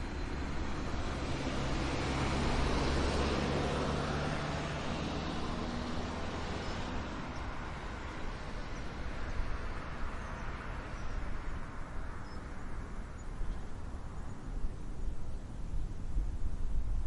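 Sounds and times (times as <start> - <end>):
wind blowing with low rumble: 0.0 - 17.0
distant bird chirps: 6.4 - 14.6.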